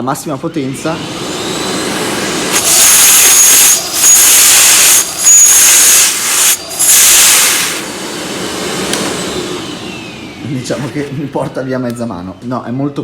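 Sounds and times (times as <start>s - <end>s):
vacuum cleaner running: 0.0s - 13.0s
rushes of hissing air: 0.8s - 10.0s.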